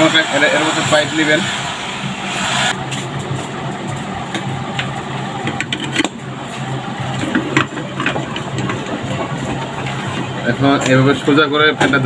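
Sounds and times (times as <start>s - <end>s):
steady low hum: 0.0s - 12.0s
fan parts clicking and knocking: 2.9s - 12.0s.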